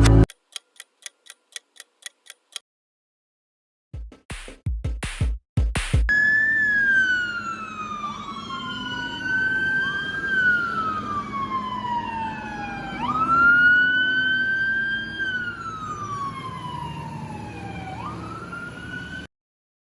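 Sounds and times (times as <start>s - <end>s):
emergency siren wailing: 6.1s - 19.3s.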